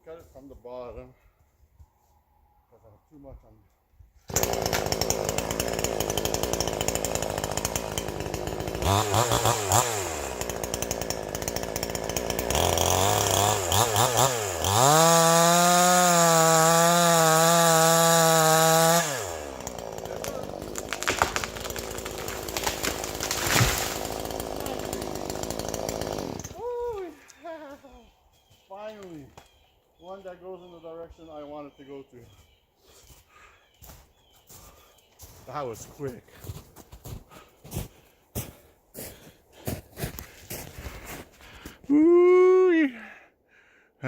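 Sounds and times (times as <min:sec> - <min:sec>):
chainsaw cutting tree: 0:04.3 - 0:27.2.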